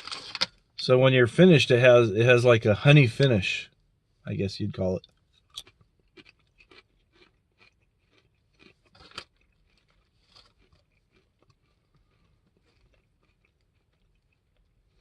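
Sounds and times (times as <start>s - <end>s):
chips crunching while chewed: 0.0s - 0.6s, 5.0s - 15.0s.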